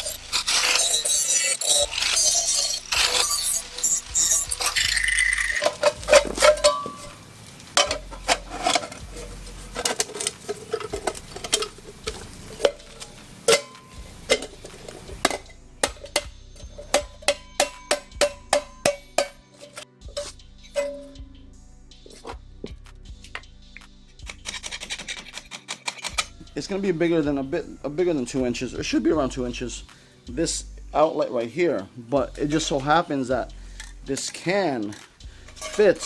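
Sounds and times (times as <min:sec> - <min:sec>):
metal exhaust parts clinking: 0:00.0 - 0:21.3, 0:33.7 - 0:36.0
loud hiss: 0:01.8 - 0:15.6.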